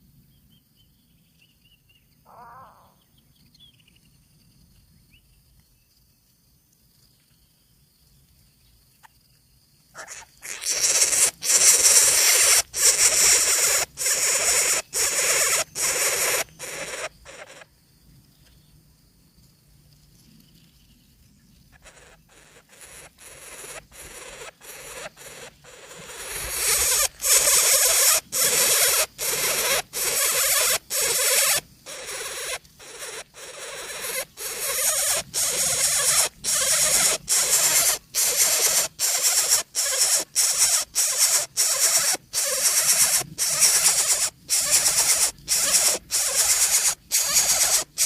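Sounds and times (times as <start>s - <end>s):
nestlings rasping hisses: 10.1s - 17.6s, 21.8s - 48.0s.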